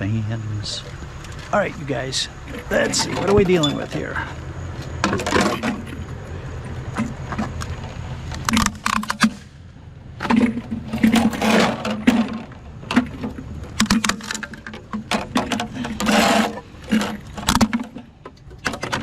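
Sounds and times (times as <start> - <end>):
fans clattering and scraping: 0.0 - 19.0
low steady rumble: 0.0 - 19.0.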